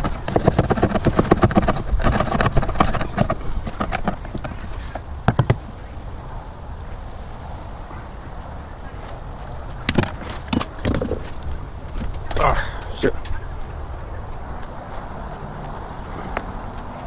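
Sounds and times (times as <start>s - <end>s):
hand tools scraping paint: 0.0s - 5.8s
sharp knocks: 0.0s - 5.8s.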